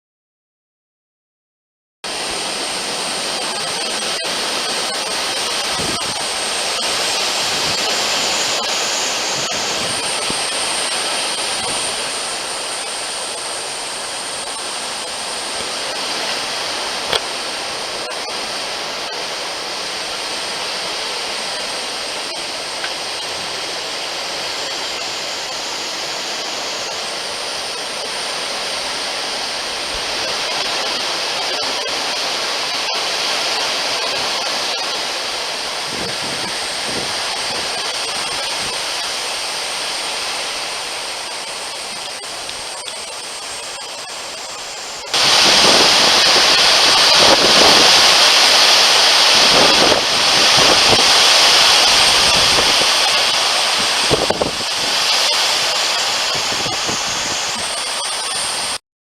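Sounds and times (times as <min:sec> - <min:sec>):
strong wind rushing: 0:02.1 - 0:30.7, 0:33.2 - 0:41.8, 0:45.1 - 0:58.8.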